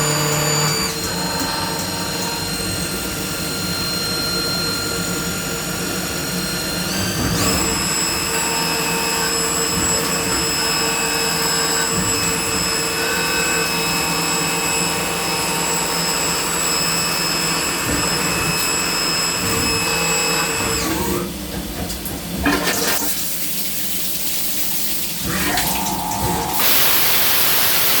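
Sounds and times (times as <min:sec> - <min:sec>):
milling machine high whine: 0:00.0 - 0:21.4, 0:25.2 - 0:28.0
coolant hissing and splashing: 0:22.5 - 0:28.0.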